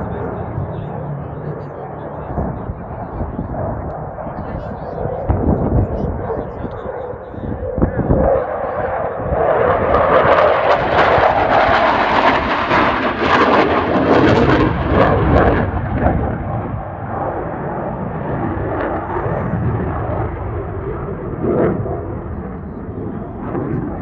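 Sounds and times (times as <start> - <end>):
jet engines passing overhead: 0.0 - 24.0.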